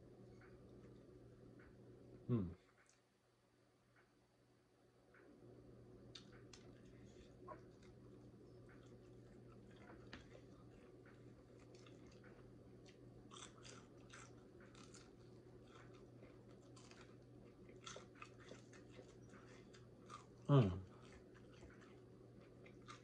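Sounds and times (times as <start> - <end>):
low steady hum: 0.0 - 23.0
chewing crunchy fried chicken: 6.0 - 23.0.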